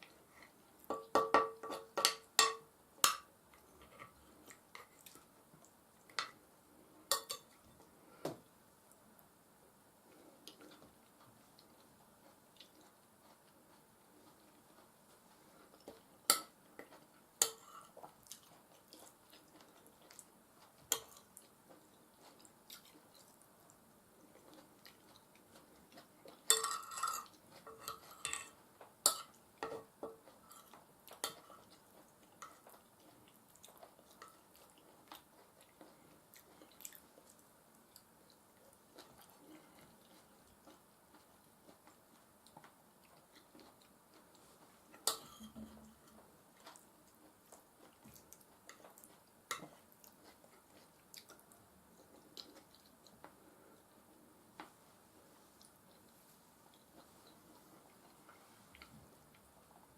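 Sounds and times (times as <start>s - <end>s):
soft chewing: 0.0s - 2.4s, 3.0s - 59.9s
cutlery clicking on a plate: 0.9s - 3.3s, 7.1s - 7.5s, 17.4s - 17.8s, 26.5s - 30.2s, 45.0s - 45.7s
cutlery scraping: 7.1s - 7.5s, 17.4s - 17.9s, 26.5s - 29.8s, 45.0s - 45.9s.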